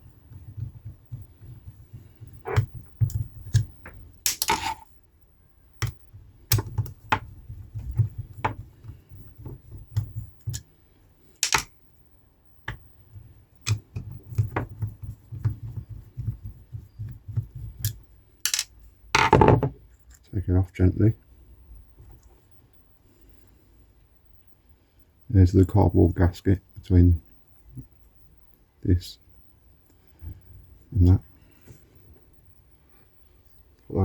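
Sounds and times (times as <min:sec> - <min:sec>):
small clicks and taps of tools: 0:05.8 - 0:10.7, 0:11.4 - 0:11.7, 0:17.3 - 0:18.7.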